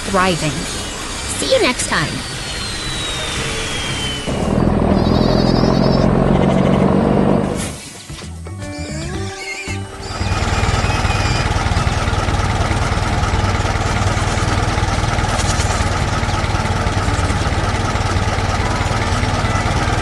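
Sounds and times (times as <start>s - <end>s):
vehicle engine idling: 9.8s - 20.0s.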